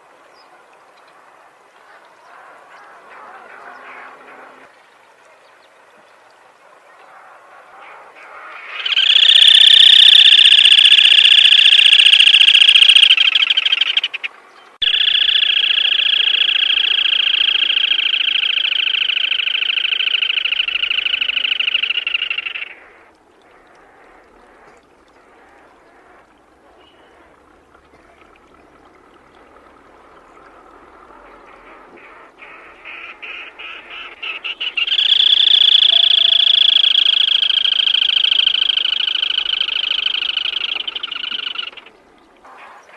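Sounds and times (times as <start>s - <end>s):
crake calling with rapid trill: 8.7s - 22.9s, 32.9s - 41.9s.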